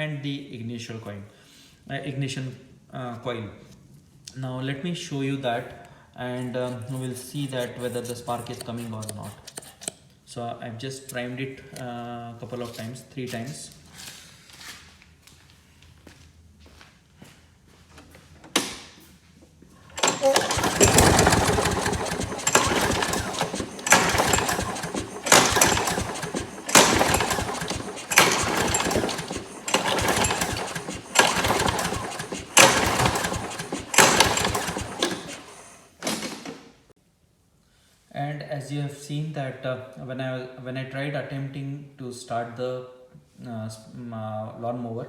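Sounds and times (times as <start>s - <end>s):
mower engine recoil cranking: 19.8s - 36.6s.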